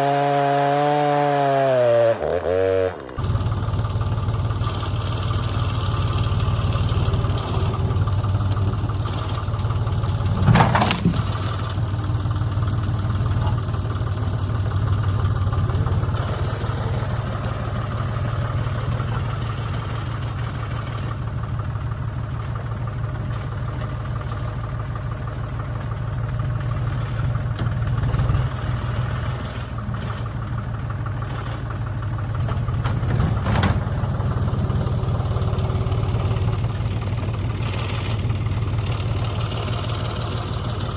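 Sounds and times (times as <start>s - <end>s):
engine idling: 2.2s - 40.9s.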